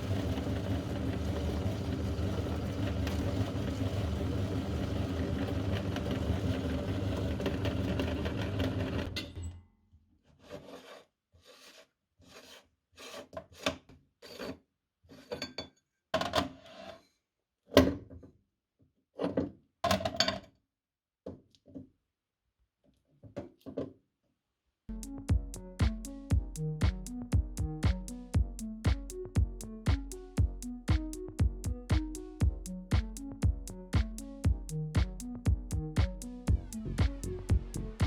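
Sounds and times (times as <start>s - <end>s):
electric meat grinder running: 0.0s - 9.2s.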